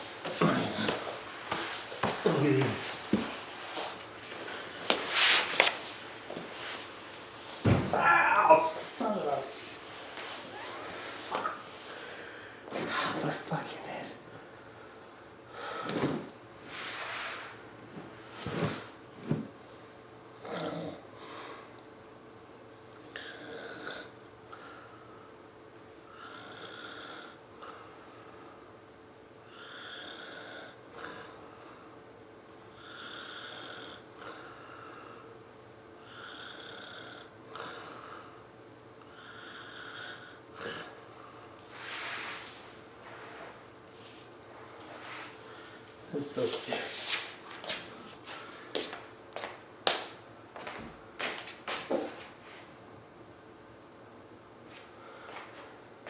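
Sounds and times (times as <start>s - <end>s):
household knocks and thuds: 7.6s - 8.0s
snoring breaths: 26.1s - 28.0s, 29.5s - 31.9s, 32.8s - 35.3s, 39.1s - 41.4s.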